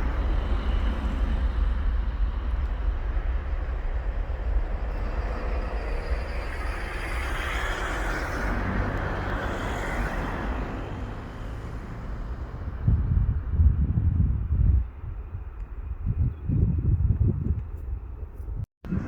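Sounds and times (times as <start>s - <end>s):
aircraft engine rush: 0.0s - 19.0s
low rumble: 0.0s - 19.0s.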